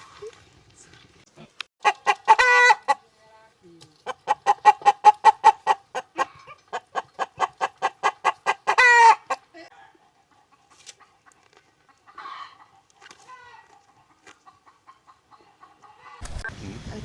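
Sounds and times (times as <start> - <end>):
hen cackling: 1.8 - 3.0, 4.1 - 9.6, 12.1 - 16.3.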